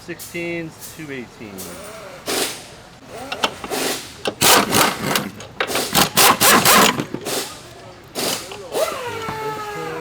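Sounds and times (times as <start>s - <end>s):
ratchet rasping: 3.2s - 7.6s.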